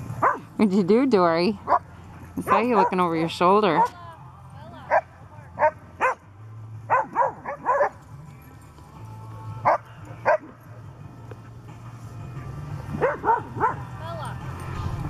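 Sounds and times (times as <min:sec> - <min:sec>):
dogs barking: 0:00.1 - 0:00.6, 0:01.6 - 0:04.0, 0:04.9 - 0:08.1, 0:09.6 - 0:10.6, 0:12.9 - 0:14.0.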